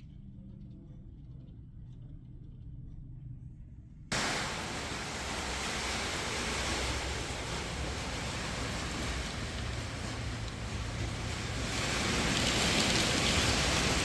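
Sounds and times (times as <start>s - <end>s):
wind and hail rushing: 4.1s - 14.0s.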